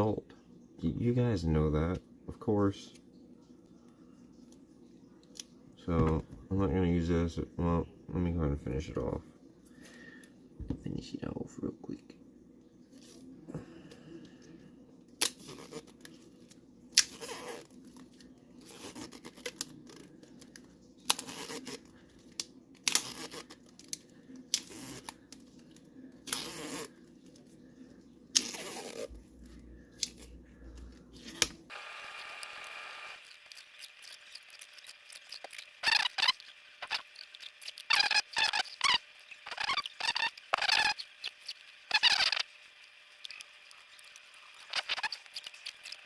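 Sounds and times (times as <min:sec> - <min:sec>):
adhesive tape ripping off roll: 0:15.2 - 0:16.1, 0:17.0 - 0:18.0, 0:18.6 - 0:25.4, 0:26.2 - 0:27.0, 0:28.3 - 0:29.1, 0:31.2 - 0:42.6, 0:43.2 - 0:46.0.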